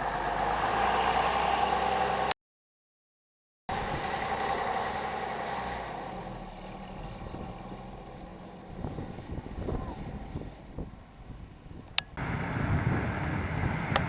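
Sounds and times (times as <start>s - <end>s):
bus diesel engine pulling away: 0.0s - 2.4s, 3.7s - 9.4s, 12.2s - 14.0s.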